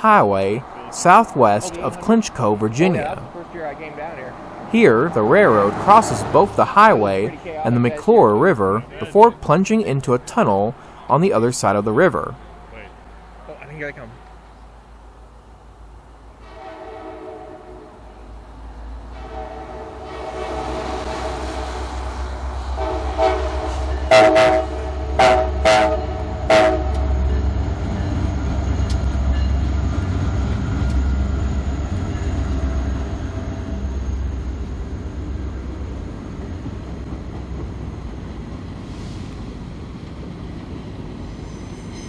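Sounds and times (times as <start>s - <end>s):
deep locomotive engine rumble: 2.5s - 9.4s, 12.2s - 42.0s
train air horn blasts: 16.4s - 18.1s, 19.1s - 22.0s, 22.7s - 27.3s.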